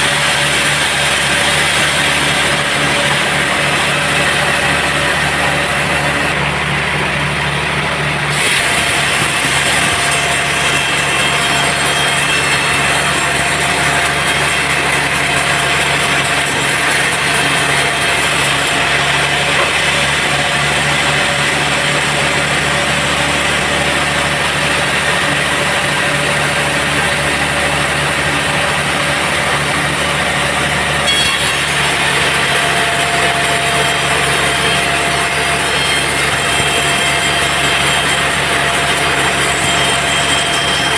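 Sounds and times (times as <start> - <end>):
band saw cutting wood: 0.0 - 40.9
saw motor running: 0.0 - 40.9.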